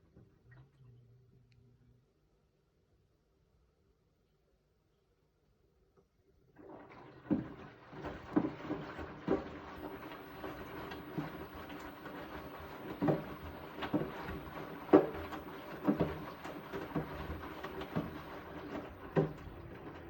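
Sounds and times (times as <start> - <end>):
washing machine running: 6.6 - 20.0
wet load thumping in drum: 7.3 - 20.0.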